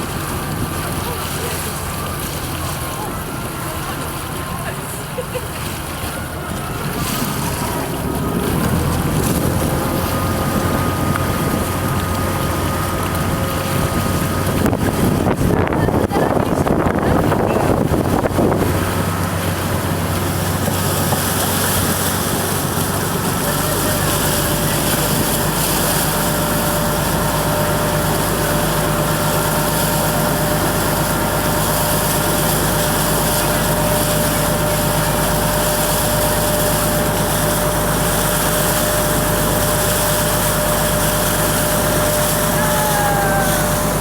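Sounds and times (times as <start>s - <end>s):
motorboat engine running: 0.0s - 44.0s
thin steady whine: 19.3s - 44.0s.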